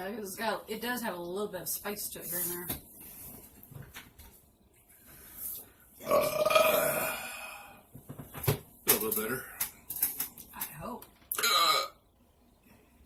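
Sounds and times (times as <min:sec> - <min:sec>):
person burping: 0:06.0 - 0:07.8, 0:11.3 - 0:12.0.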